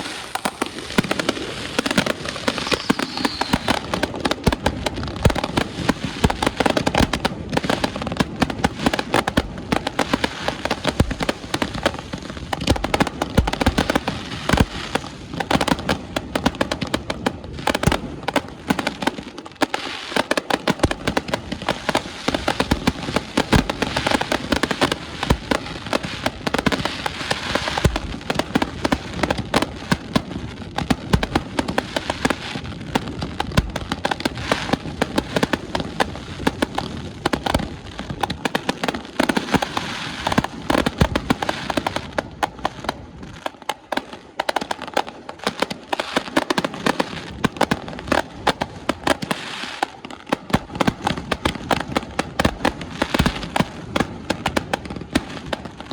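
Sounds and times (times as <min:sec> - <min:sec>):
fireworks booms: 0:00.0 - 0:14.8
fireworks crackling and banging: 0:00.0 - 0:55.9.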